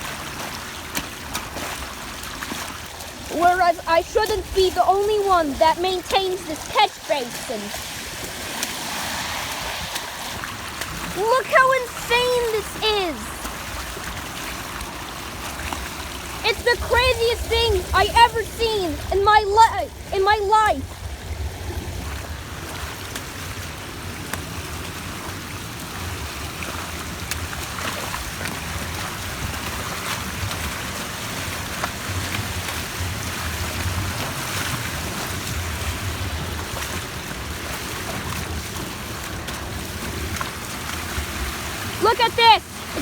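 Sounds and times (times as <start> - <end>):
storm water rushing into drain: 0.0 - 43.0
wind buffeting microphone: 15.9 - 22.9.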